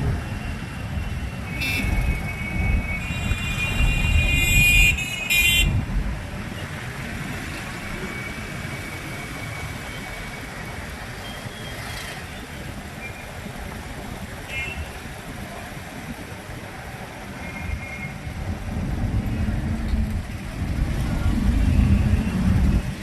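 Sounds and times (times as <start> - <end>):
traffic engine and road rumble: 0.0 - 23.0
vehicle horns honking: 1.5 - 5.7.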